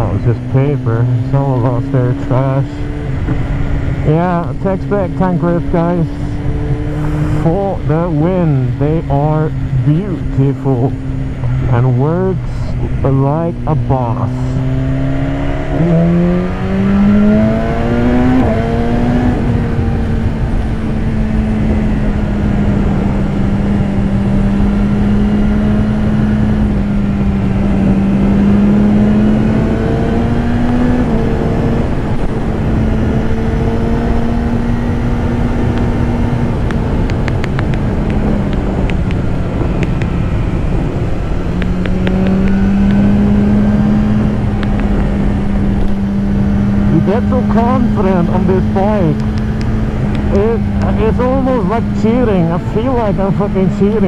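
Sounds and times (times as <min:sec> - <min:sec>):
motorcycle engine running: 0:00.0 - 0:54.0
wind noise rushing: 0:02.8 - 0:10.3, 0:14.2 - 0:53.8.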